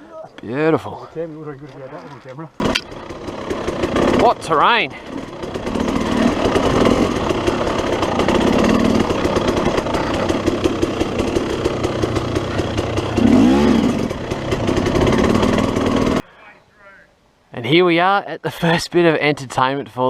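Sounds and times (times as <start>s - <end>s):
dirt bike engine running: 2.6s - 16.2s.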